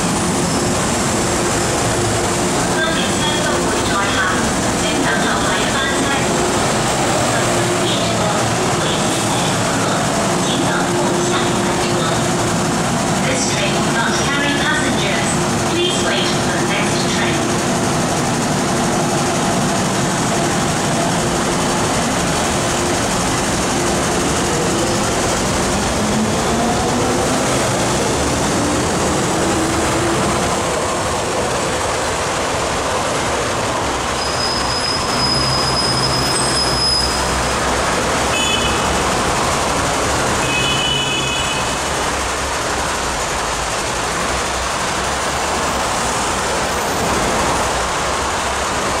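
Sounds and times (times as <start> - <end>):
train rail rumble: 0.0 - 49.0.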